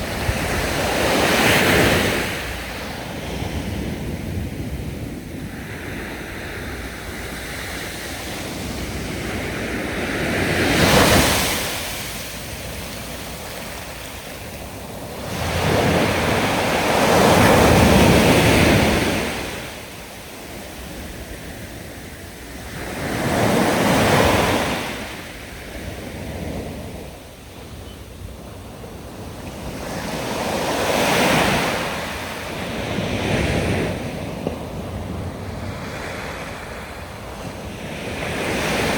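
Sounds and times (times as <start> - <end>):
sea waves breaking: 0.0 - 27.0.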